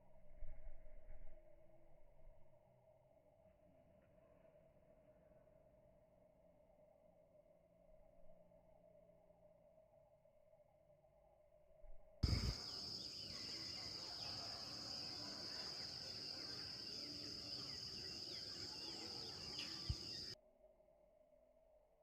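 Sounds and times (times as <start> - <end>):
bird chirps: 12.2 - 20.4
high-pitched insect trill: 12.2 - 20.4.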